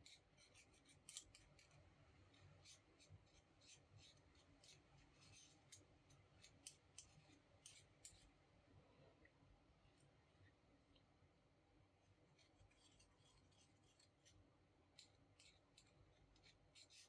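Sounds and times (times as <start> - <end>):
faint small clicks and ticks: 0.0 - 8.3, 12.3 - 17.0.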